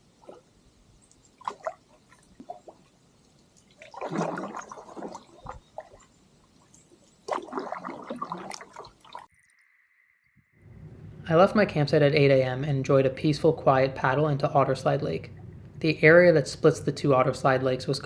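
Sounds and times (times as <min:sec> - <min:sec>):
water splashing around canoe: 0:00.0 - 0:00.6, 0:01.3 - 0:09.3
water dripping: 0:00.0 - 0:09.7.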